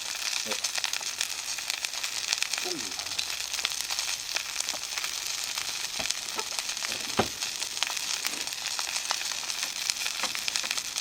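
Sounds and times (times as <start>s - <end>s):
meat sizzling in a skillet: 0.0s - 11.0s
dull knock: 7.2s - 7.4s.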